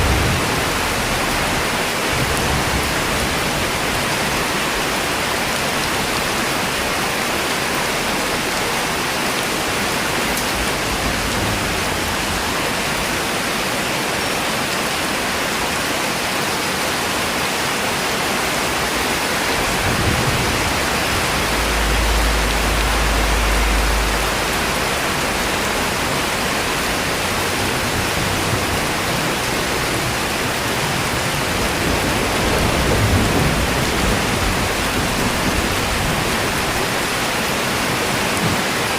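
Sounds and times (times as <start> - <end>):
steady rainfall: 0.0 - 38.9
low rumble: 19.5 - 28.3.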